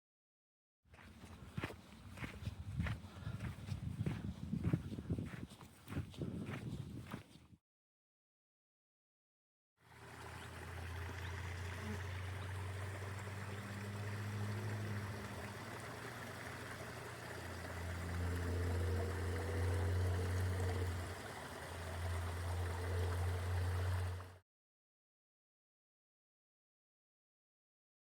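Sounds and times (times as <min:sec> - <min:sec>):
stream trickling: 0:09.8 - 0:24.4.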